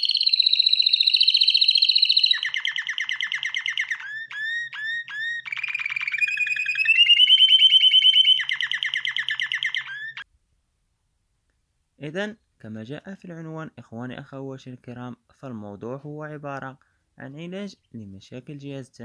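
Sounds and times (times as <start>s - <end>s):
canary singing trills and whistles: 0.0s - 10.3s.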